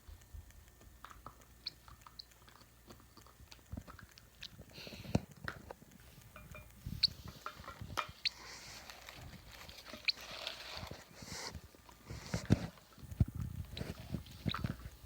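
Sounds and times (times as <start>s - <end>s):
bird beak nibbling and chewing: 0.4s - 15.0s.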